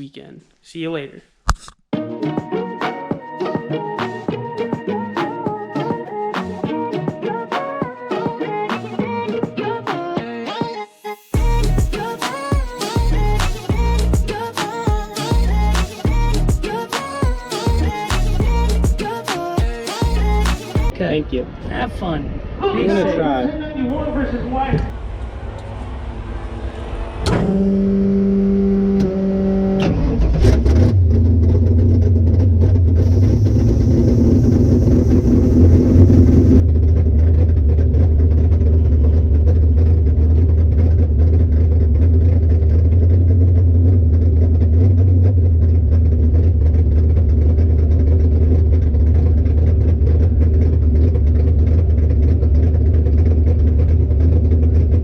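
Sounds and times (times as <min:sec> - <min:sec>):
car engine running: 0:11.4 - 0:12.2, 0:25.0 - 0:55.0.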